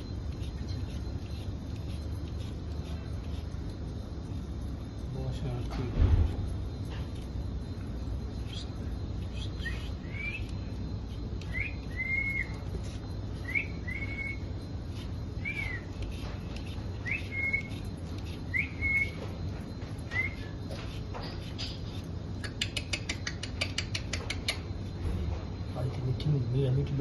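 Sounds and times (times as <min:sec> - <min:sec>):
parrot whistling: 0:08.3 - 0:19.4, 0:20.0 - 0:20.8.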